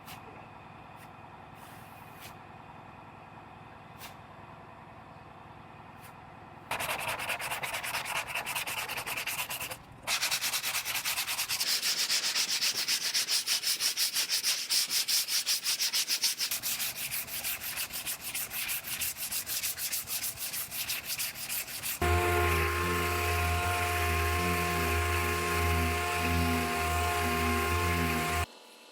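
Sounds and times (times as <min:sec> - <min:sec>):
sandpaper scraping car panel: 0:06.7 - 0:28.5.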